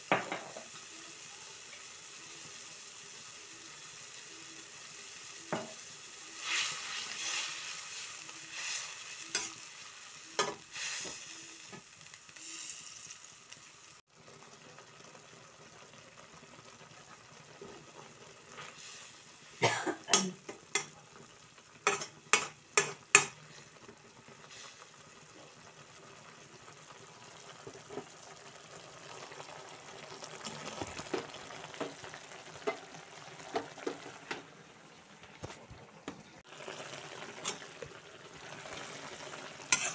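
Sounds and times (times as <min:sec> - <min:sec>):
leaves sizzling in oil: 0:00.0 - 0:35.7, 0:36.4 - 0:39.9.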